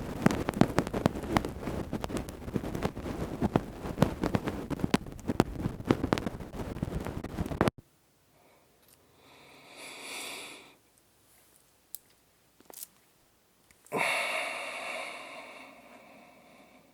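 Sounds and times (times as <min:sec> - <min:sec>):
person breathing close: 0:08.3 - 0:10.8, 0:13.9 - 0:16.9.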